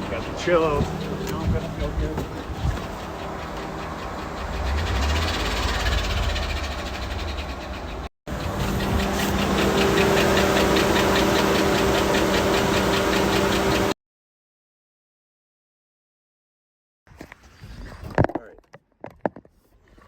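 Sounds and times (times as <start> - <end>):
engine running with rod knock: 0.0 - 14.0.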